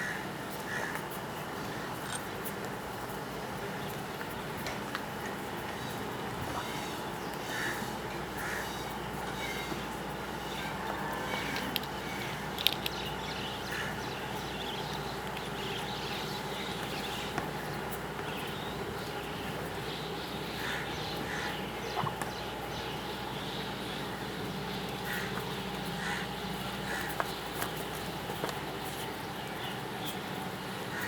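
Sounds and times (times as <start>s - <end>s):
steady low hum: 0.0s - 31.0s
small birds chirping: 11.4s - 31.0s.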